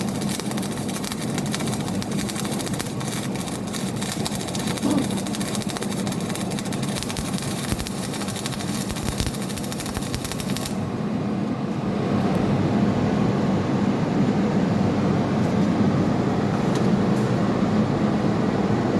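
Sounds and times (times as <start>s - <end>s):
welding arc crackling: 0.0s - 10.8s.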